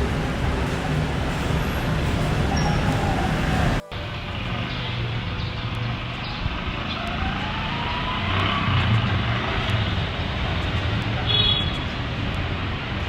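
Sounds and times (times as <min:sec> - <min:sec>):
engine rising in pitch: 0:00.0 - 0:10.3
rumble of road traffic: 0:00.0 - 0:13.0.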